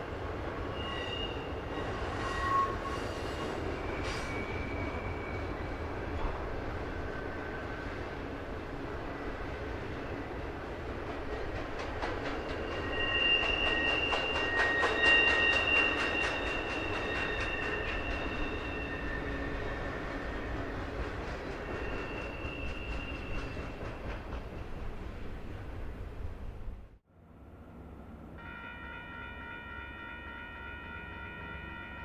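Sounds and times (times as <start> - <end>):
wheels squealing on track: 0.7 - 5.8, 12.4 - 20.8, 21.5 - 23.8
train wheels clicking on rails: 9.3 - 25.7.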